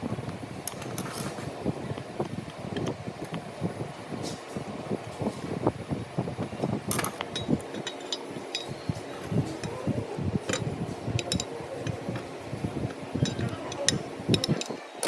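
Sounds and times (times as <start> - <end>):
metal parts and tools clinking: 6.9 - 9.8, 10.4 - 15.0.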